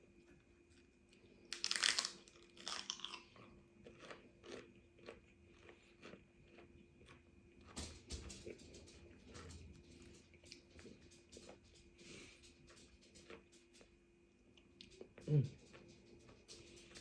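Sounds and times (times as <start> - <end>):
crunchy chewing: 0.7 - 17.0
crisp bite into celery: 1.5 - 3.4.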